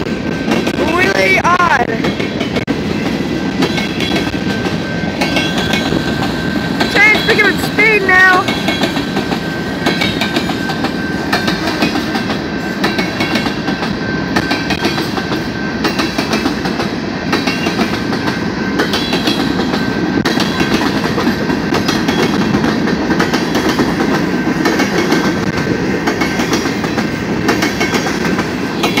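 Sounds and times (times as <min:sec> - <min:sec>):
train wheels rumbling on rail: 0:00.0 - 0:29.0
clacking over rail joints: 0:01.8 - 0:07.7, 0:08.4 - 0:29.0.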